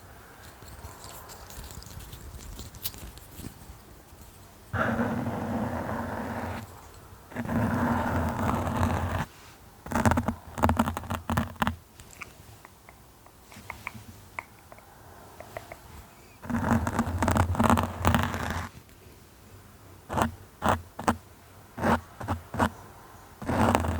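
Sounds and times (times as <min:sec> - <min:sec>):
scratching on a surface: 0:00.4 - 0:12.7, 0:15.4 - 0:18.8, 0:20.1 - 0:21.2, 0:21.8 - 0:22.8, 0:23.4 - 0:23.9
light taps: 0:12.2 - 0:16.1.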